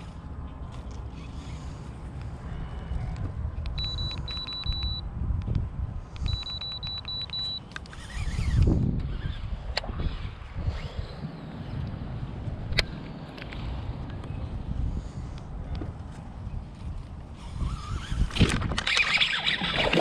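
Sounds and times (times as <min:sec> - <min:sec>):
wind rumbling on microphone: 0:00.0 - 0:07.0, 0:07.8 - 0:20.0
short high electronic beeps: 0:03.8 - 0:05.0.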